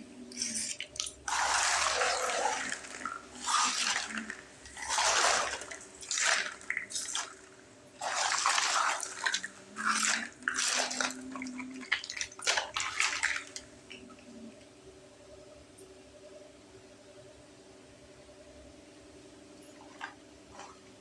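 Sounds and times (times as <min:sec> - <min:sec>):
water splashing into toy sink: 0:00.3 - 0:14.1.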